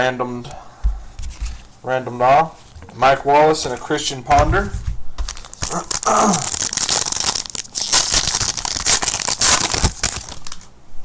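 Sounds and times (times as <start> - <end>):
wrapper tearing and crinkling: 5.2 - 10.7.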